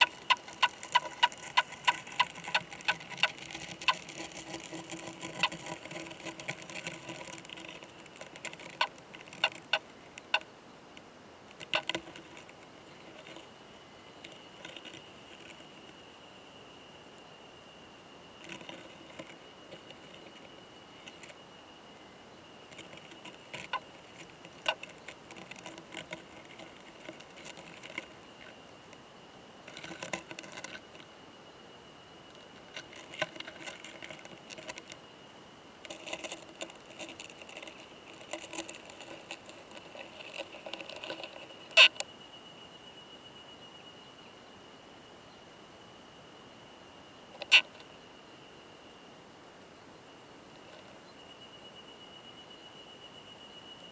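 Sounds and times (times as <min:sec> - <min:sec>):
beetles clicking and scratching: 0:00.0 - 0:16.0, 0:18.3 - 0:21.6, 0:22.5 - 0:31.2, 0:32.0 - 0:42.1, 0:47.3 - 0:48.0.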